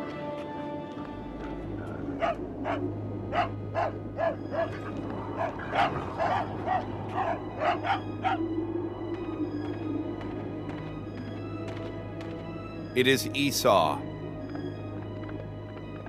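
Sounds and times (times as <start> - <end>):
dog barking: 2.2 - 4.8, 5.4 - 8.4.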